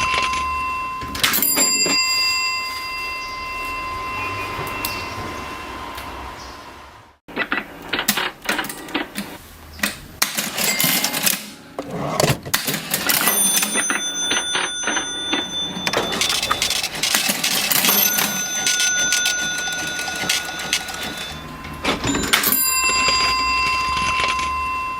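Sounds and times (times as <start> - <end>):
cash register key clacks: 10.2 - 21.4
cash register lever clatter: 10.2 - 22.6
thin ringing tones: 13.2 - 24.9.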